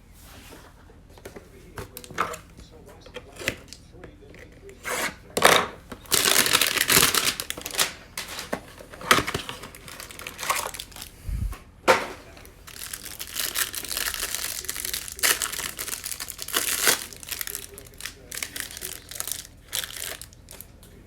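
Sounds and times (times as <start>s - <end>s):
packaging crinkling and crushing: 5.4s - 11.1s, 12.2s - 21.0s.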